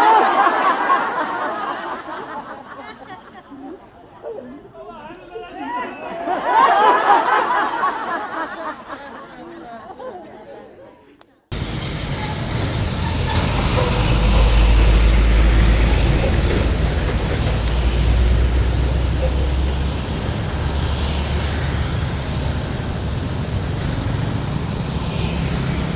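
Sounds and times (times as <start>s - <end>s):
heavy truck driving past: 11.5s - 25.9s
thin high whistle: 11.6s - 20.0s.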